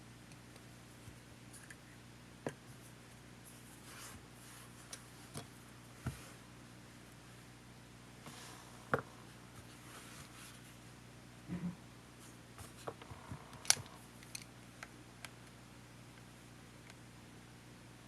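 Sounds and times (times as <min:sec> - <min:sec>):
steady low hum: 0:00.0 - 0:18.0
small handling clicks and taps: 0:12.8 - 0:15.6.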